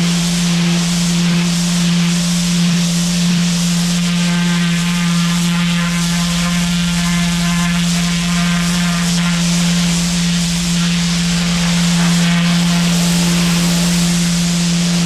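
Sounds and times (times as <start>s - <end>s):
water spray hissing on concrete: 4.5s - 14.9s
pressure washer motor hum: 4.6s - 15.0s.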